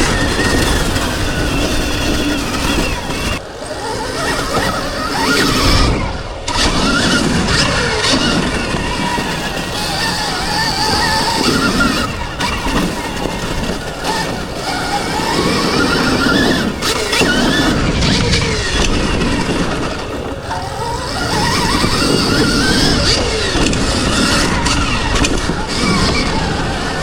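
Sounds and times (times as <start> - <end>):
electric motorbike motor whining: 0.0 - 27.0
tyres on dirt: 0.0 - 27.0.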